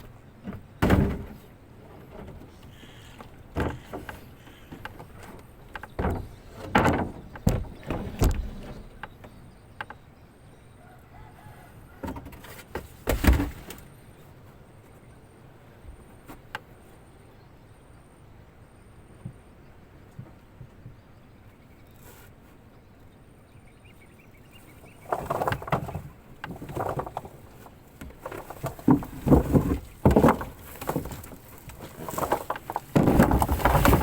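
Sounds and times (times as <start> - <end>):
irregular knocks and thuds: 0.4 - 10.0, 12.0 - 13.8, 25.0 - 34.0.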